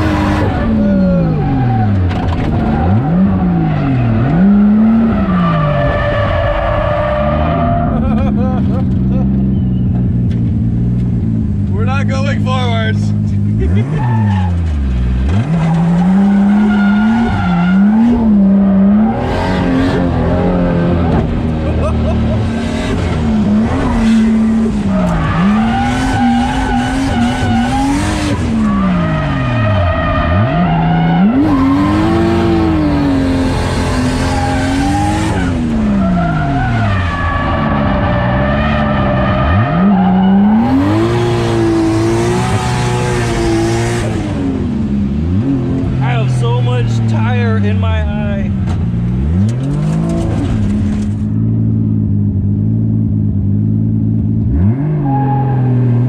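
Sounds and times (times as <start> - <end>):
tires squealing and skidding: 0.0 - 8.3, 13.7 - 43.7, 54.6 - 56.0
car engine revving high: 0.0 - 56.0.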